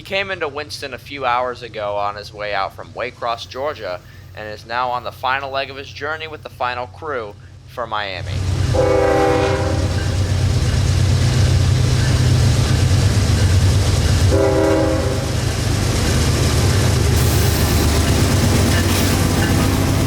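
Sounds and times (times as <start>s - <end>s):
locomotive engine rumble: 0.0s - 20.0s
locomotive horn blasts: 8.7s - 10.2s, 14.3s - 15.4s.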